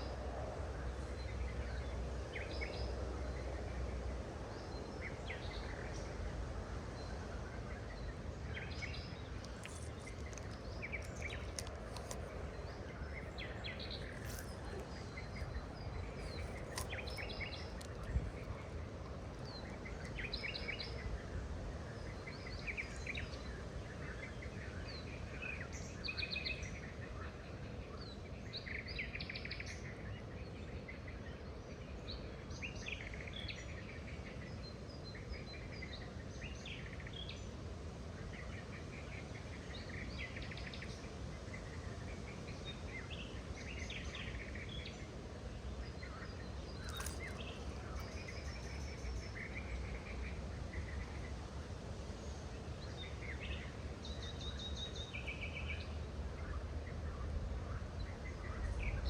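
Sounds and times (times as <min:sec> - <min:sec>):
low background noise: 0:00.0 - 0:59.0
birds chirping and trilling: 0:46.4 - 0:51.3.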